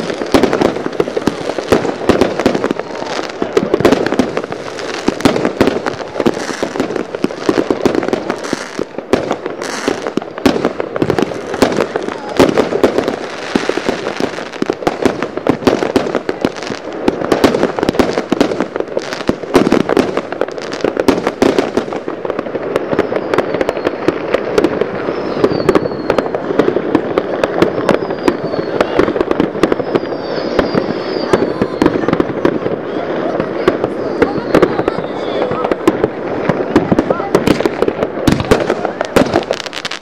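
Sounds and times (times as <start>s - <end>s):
fireworks bangs and pops: 0.0s - 40.0s
firework falling whistles: 22.7s - 32.7s, 33.4s - 35.8s.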